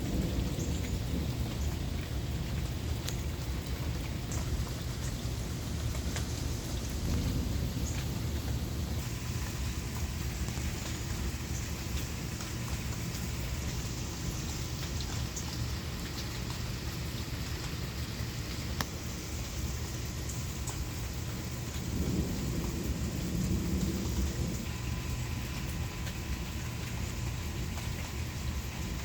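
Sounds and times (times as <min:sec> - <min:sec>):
low thunder rumble: 0:00.0 - 0:29.0
steady rain falling: 0:00.0 - 0:29.0.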